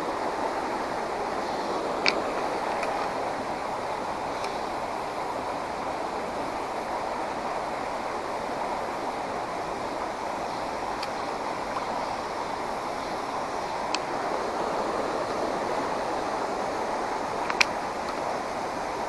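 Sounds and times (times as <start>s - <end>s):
creek water flowing: 0.0s - 19.0s
faint ticks: 10.5s - 12.5s, 17.3s - 18.3s.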